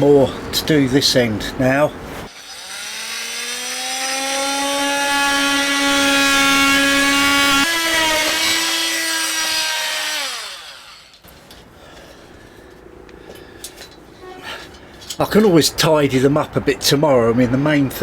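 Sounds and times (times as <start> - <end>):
power saw cutting wood: 2.3 - 11.2.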